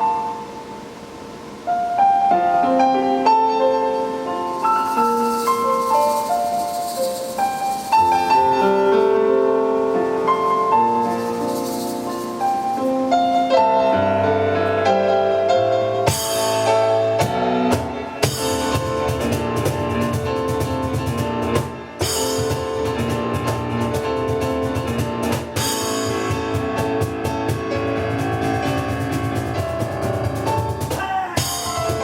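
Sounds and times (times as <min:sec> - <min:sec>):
piano melody: 0:00.0 - 0:32.0
drums fast steady beat: 0:16.0 - 0:32.0.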